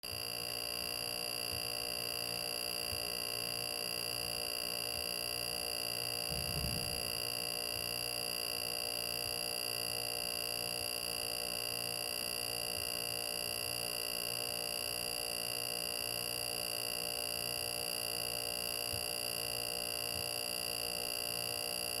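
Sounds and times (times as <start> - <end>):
refrigerator high-pitched whine: 0.0 - 22.0
brief low rumble: 6.2 - 7.3
faint low pulsing: 6.2 - 7.3.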